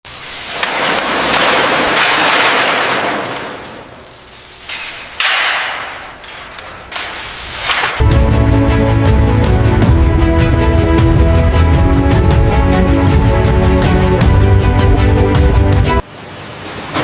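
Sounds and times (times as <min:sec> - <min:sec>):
music track: 0:08.0 - 0:16.0.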